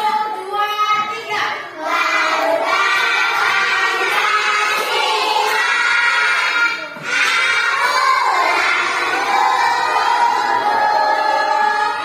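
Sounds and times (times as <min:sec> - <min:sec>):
children chanting in unison: 0:01.7 - 0:12.0.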